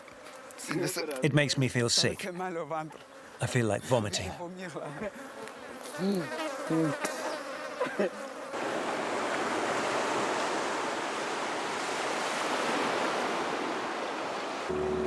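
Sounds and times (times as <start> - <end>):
flies buzzing: 0.0 - 15.0
surf breaking on beach: 8.5 - 15.0.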